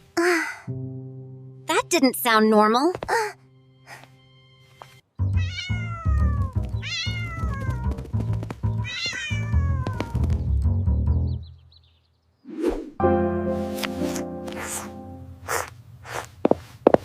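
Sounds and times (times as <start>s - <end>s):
background music: 0.0s - 11.5s, 13.0s - 15.5s
kitten meowing: 5.4s - 7.9s, 8.8s - 10.3s.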